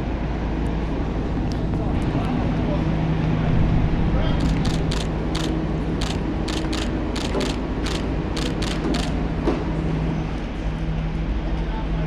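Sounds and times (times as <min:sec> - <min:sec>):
steady low hum: 0:00.0 - 0:12.0
mechanical clicking and rattling: 0:04.4 - 0:09.2.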